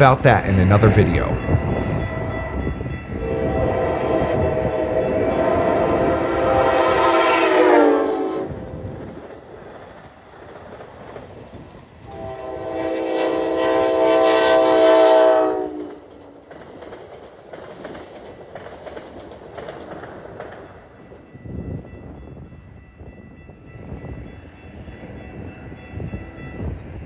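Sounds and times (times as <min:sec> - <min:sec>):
train horn chord: 0:12.1 - 0:15.9
train wheels clicking on rails: 0:16.1 - 0:21.2.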